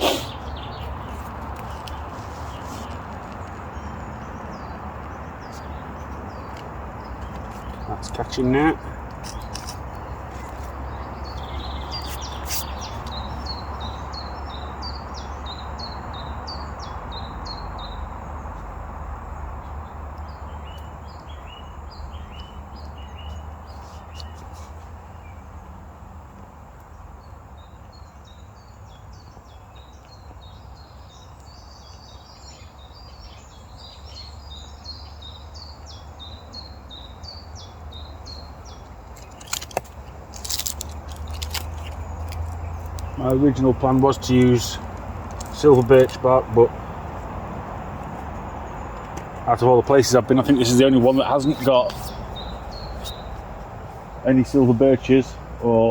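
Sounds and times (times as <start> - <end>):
songbirds chirping: 0.0 - 55.9
campfire rushing and crackling: 39.2 - 46.6.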